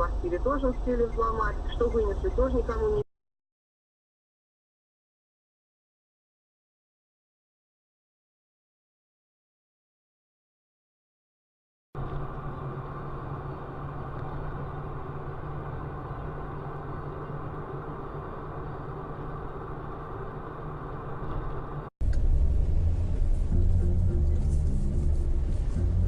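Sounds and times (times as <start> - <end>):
car engine and road noise: 0.0 - 3.1, 12.0 - 26.0
deep vehicle rumble: 0.0 - 3.1, 12.0 - 26.0.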